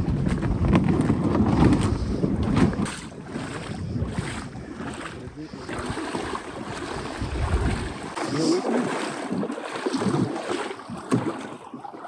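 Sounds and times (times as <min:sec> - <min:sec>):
wind buffeting microphone: 0:00.0 - 0:08.2
kayak paddle splashes: 0:00.0 - 0:12.0
water lapping around hull: 0:00.0 - 0:12.0.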